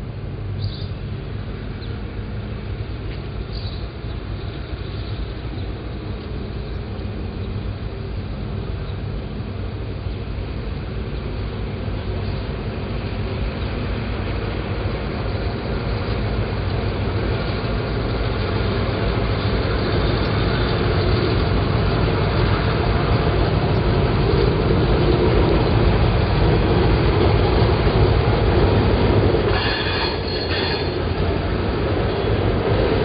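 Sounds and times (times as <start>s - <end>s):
diesel locomotives rumbling: 0.0s - 33.0s
freight cars rolling on rails: 0.0s - 33.0s
wheels squealing on rail: 29.2s - 33.0s.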